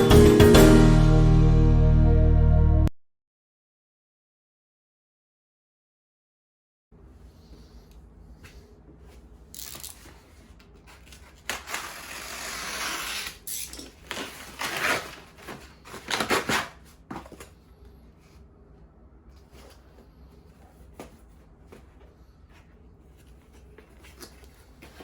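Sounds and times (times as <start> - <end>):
rustling and scraping: 7.1 - 18.5, 19.3 - 25.0.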